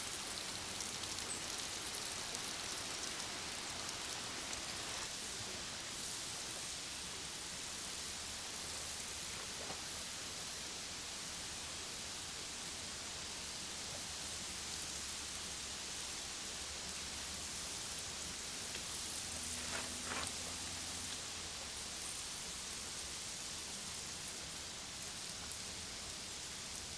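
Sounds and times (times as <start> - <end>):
steaks sizzling on a grill: 0.0 - 26.9.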